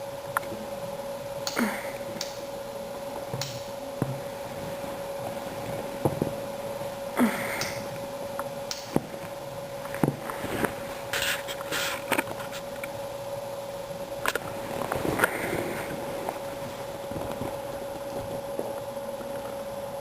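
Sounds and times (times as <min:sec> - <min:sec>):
faint electrical hum: 0:00.0 - 0:20.0
scratchy rustles: 0:10.2 - 0:12.7.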